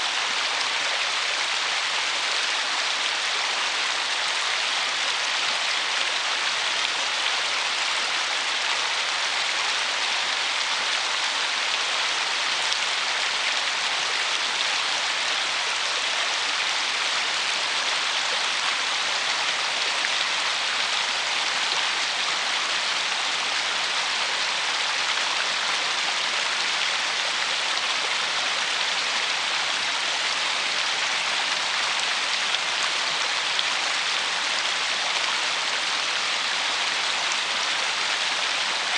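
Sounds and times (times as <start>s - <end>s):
water running over stones: 0.0s - 38.9s.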